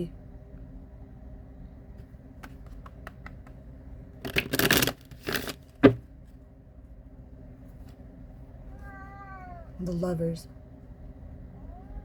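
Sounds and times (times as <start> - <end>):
cards shuffling: 4.2 - 6.0.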